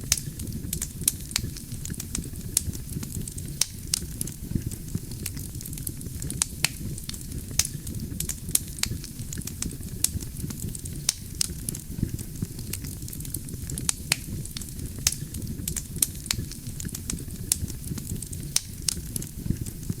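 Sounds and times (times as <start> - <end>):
burning logs crackling and popping: 0.0 - 20.0
fire rumbling: 0.0 - 20.0.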